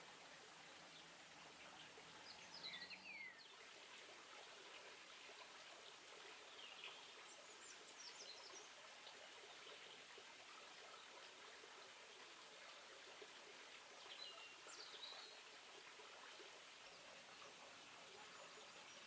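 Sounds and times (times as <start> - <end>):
faint hiss: 0.0 - 19.0
small birds chirping: 0.6 - 3.6.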